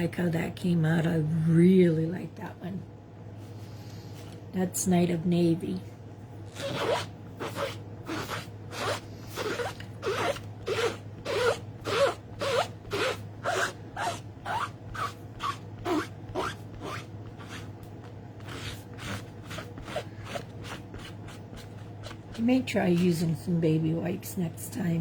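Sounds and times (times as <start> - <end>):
rubber stamp scrubbed squeaking: 6.6 - 17.7.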